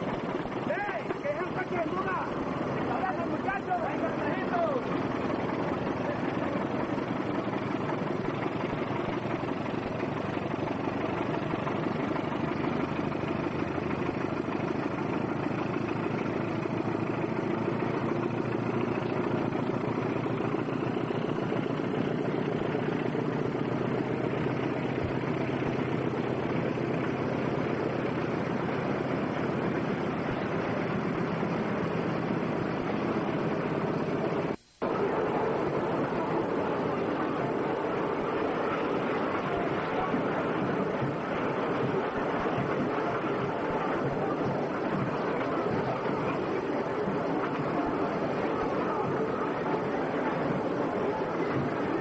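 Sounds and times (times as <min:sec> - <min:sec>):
train rumbling and rattling: 0:00.0 - 0:52.0.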